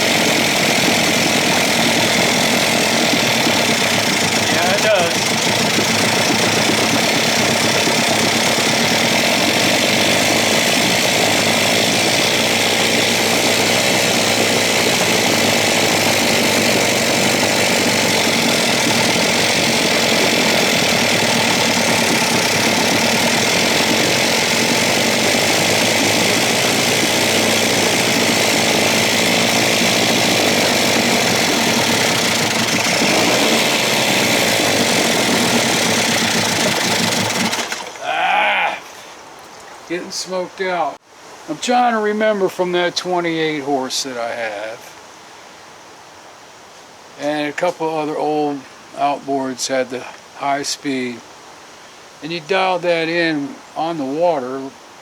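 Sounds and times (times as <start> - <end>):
outboard motor fast idle: 0.0 - 38.1.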